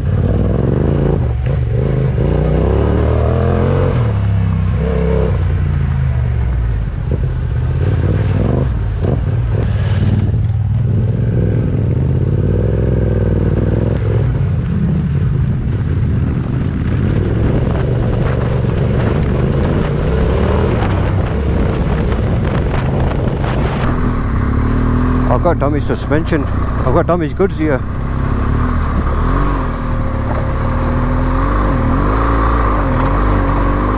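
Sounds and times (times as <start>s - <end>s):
motorcycle engine revving: 0.0s - 5.7s, 23.8s - 33.9s.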